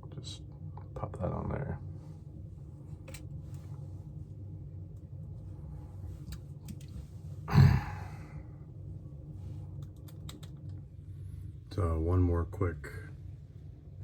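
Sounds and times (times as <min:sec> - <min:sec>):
steady low hum: 0:00.0 - 0:14.0
man sighing: 0:07.5 - 0:08.4.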